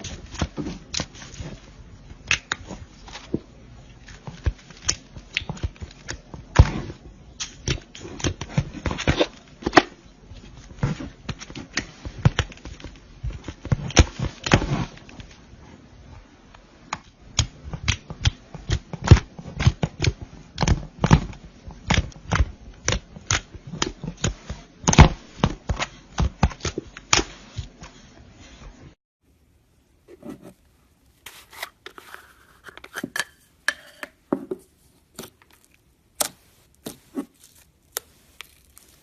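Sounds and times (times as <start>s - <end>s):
slime squished by hands: 34.7s - 39.0s.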